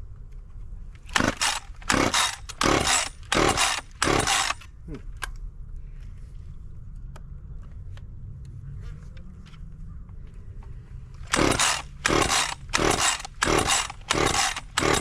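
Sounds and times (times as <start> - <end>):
chainsaw starter cord pulls: 1.0 - 4.7, 11.2 - 15.0
engine turning over: 1.1 - 4.6, 11.2 - 15.0.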